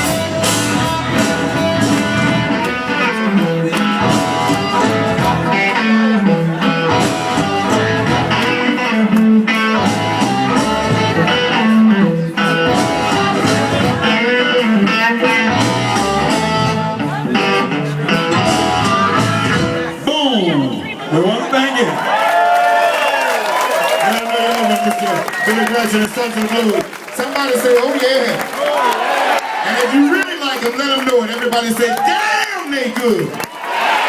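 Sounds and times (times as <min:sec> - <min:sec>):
repeating bass line: 0:00.0 - 0:20.0
electric blues band playing: 0:00.0 - 0:20.9
electric guitar: 0:00.0 - 0:20.9.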